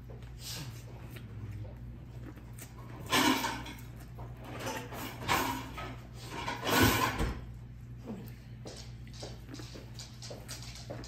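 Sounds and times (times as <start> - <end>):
chewing corn on the cob: 0.0 - 4.6, 8.8 - 11.0.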